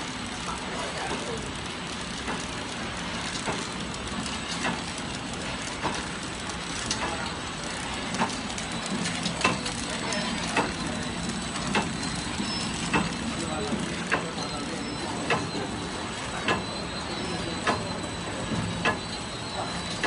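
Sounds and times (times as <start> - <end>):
packing machine hum and whir: 0.0 - 20.0
light mechanical ticks: 0.5 - 10.8, 12.9 - 13.2
sharp machine clack: 6.8 - 20.0.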